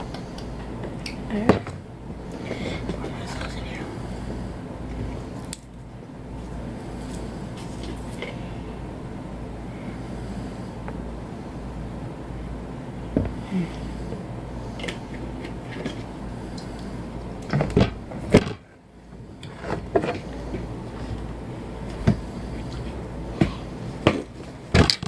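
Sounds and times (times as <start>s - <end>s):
steady low hum: 0.0s - 25.0s
clicks and knocks of handling objects: 21.9s - 25.0s.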